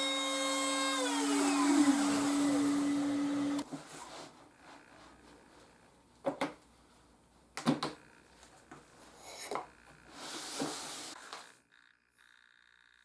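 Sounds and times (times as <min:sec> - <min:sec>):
wood scraping slide: 0:10.2 - 0:11.2.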